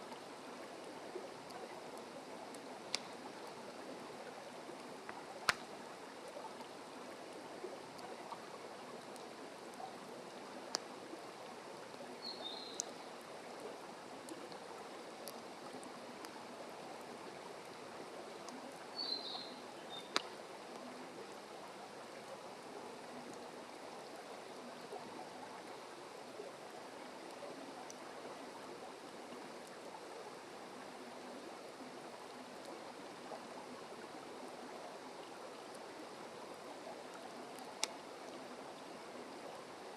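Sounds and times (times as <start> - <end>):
fire crackling and popping: 2.5 - 3.7, 4.7 - 6.4, 10.7 - 10.9, 20.0 - 20.4, 37.5 - 38.0.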